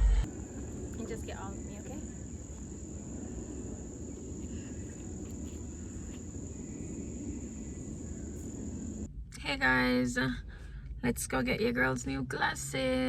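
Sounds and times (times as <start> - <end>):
low background rumble: 0.0 - 13.0
insects trilling: 0.3 - 9.1.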